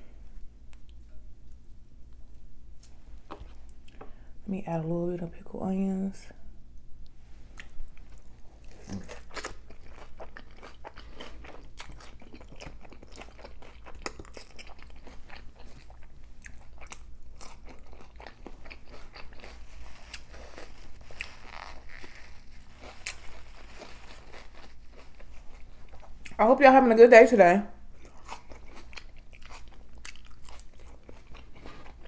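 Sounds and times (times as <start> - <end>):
person biting and crunching taco: 7.5 - 26.4, 27.9 - 32.0.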